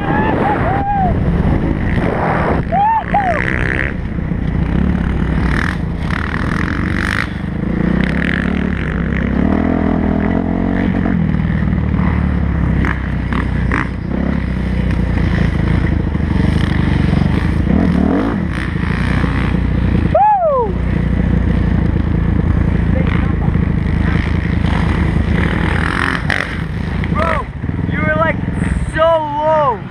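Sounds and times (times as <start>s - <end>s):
motocross bike engine revving: 0.0s - 29.9s.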